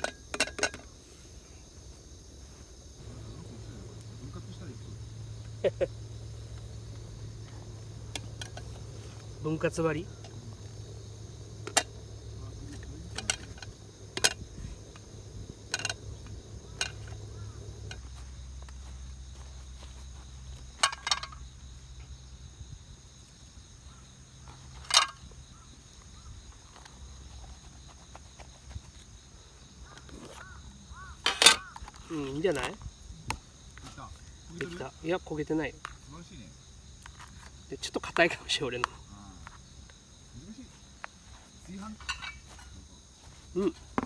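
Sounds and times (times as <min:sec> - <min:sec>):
camp cookware clinking: 0:00.0 - 0:01.0, 0:03.0 - 0:18.8, 0:20.7 - 0:21.6, 0:24.7 - 0:25.3, 0:31.1 - 0:32.7, 0:41.8 - 0:42.8
insects droning: 0:00.0 - 0:44.0
low hum: 0:03.0 - 0:18.1.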